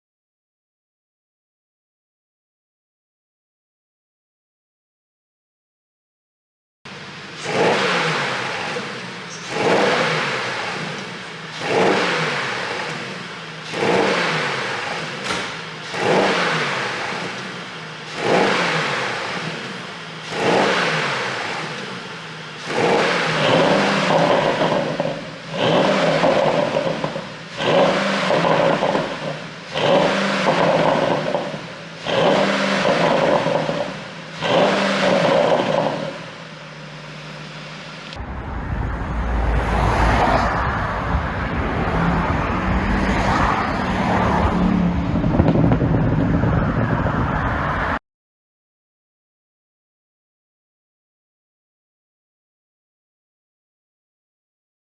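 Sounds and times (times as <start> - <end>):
car engine idling: 6.9 - 43.3
car engine revving with exhaust pops: 6.9 - 48.0
deep low rumble: 36.9 - 43.8, 44.5 - 48.0.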